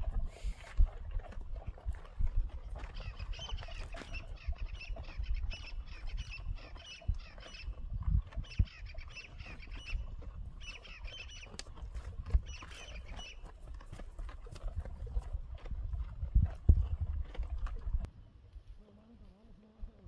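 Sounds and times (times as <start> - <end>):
wind rumble on microphone: 0.0 - 20.0
birds chirping: 2.6 - 13.6.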